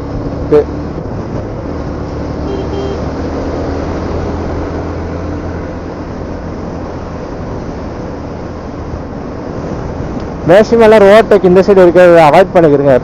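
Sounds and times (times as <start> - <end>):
wind rushing over microphone: 0.0 - 2.4
high beep: 2.5 - 3.0.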